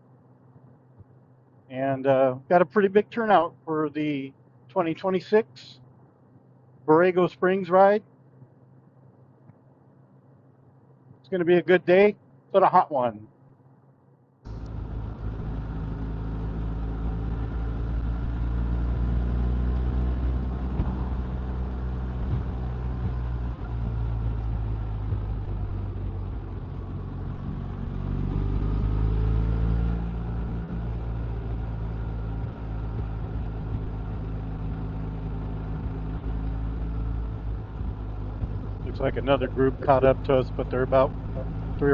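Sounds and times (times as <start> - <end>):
motorcycle engine accelerating: 14.5 - 41.9
wind and road noise: 14.5 - 41.9.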